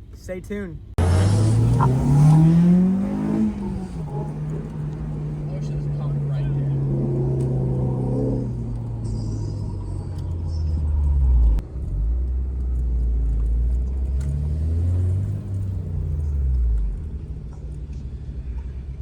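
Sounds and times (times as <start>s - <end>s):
car engine and exhaust rumbling: 0.0s - 19.0s.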